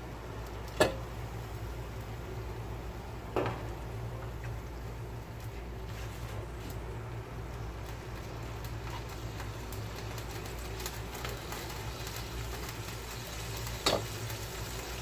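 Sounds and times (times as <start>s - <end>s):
liver sizzling in a pan: 7.6s - 15.0s.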